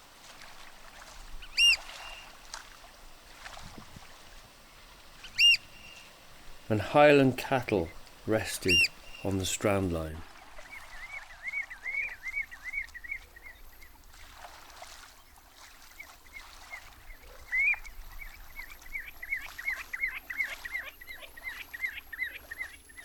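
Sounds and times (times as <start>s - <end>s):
shorebird shrill piping: 1.4s - 2.4s, 5.2s - 13.2s.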